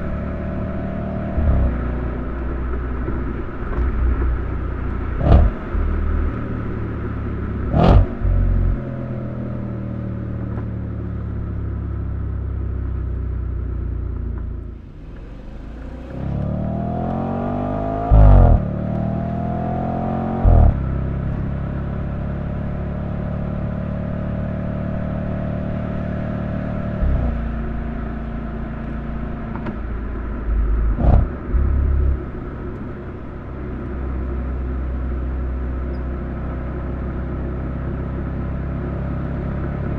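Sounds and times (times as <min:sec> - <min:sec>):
car engine accelerating: 0:00.0 - 0:39.9
short sharp exhaust bangs: 0:05.1 - 0:06.3, 0:07.6 - 0:08.8.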